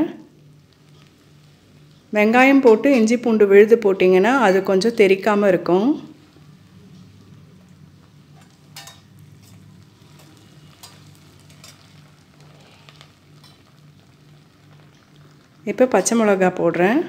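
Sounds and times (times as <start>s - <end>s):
onion sizzling in hot oil: 0.0s - 17.0s
steel spoon clicking against pan: 8.4s - 9.1s.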